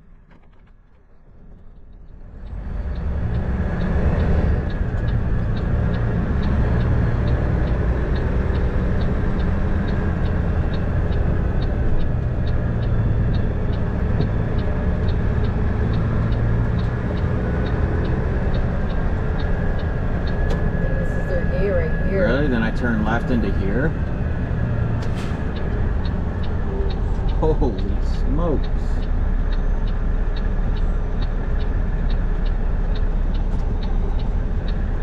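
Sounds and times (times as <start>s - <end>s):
turn signal ticking: 0.0s - 35.0s
diesel truck engine pulling hard: 2.1s - 35.0s.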